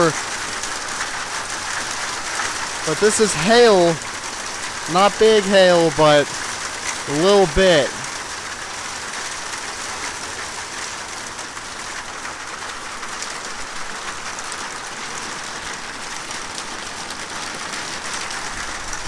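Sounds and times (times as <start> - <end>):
heavy rain on a metal roof: 0.0 - 2.9, 8.2 - 19.0.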